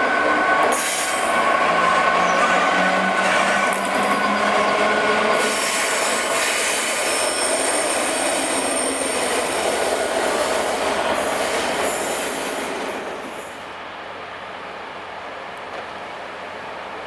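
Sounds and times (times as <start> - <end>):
train rumbling: 0.0 - 17.0
train wheel squeal: 0.6 - 13.6.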